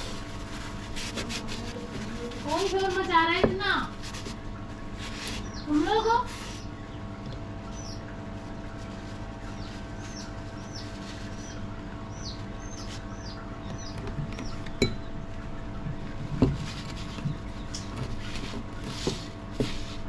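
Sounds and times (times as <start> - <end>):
steady low hum: 0.0 - 20.0
small bird chirping: 5.3 - 8.2, 8.8 - 15.2.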